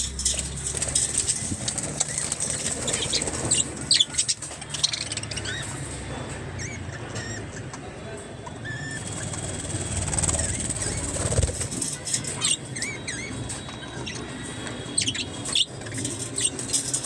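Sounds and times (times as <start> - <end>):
wing flutters: 0.0 - 4.0, 9.0 - 12.4
budgerigars chirping: 1.1 - 7.8, 8.6 - 11.6, 12.2 - 17.0.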